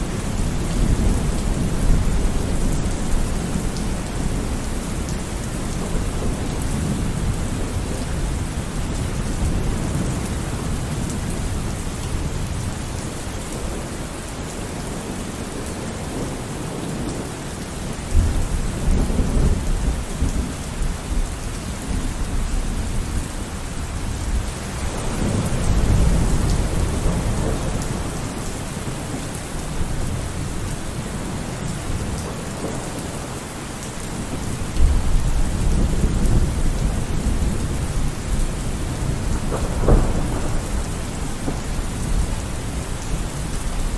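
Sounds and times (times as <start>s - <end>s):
rain hissing: 17.9s - 43.9s
thunder rumbling: 18.1s - 33.3s, 34.0s - 43.9s.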